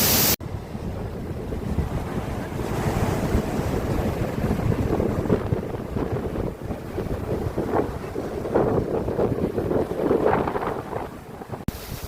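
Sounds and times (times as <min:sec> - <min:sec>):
waterfall rushing: 0:00.0 - 0:00.4
wind buffeting microphone: 0:00.4 - 0:12.0.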